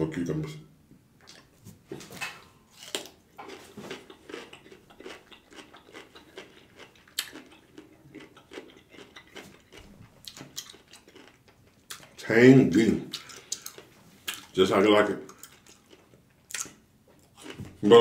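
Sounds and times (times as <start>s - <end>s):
crisp cucumber crunching: 2.7s - 12.2s, 12.8s - 14.6s, 15.2s - 18.0s.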